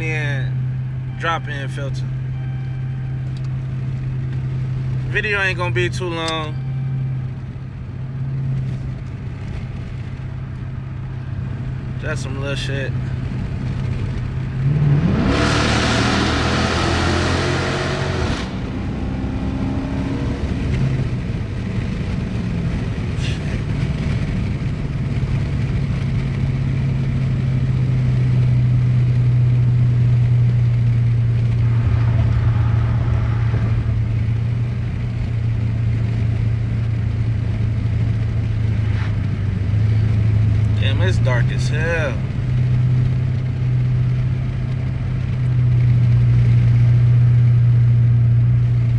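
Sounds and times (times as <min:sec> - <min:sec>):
car engine accelerating: 0:00.0 - 0:48.9.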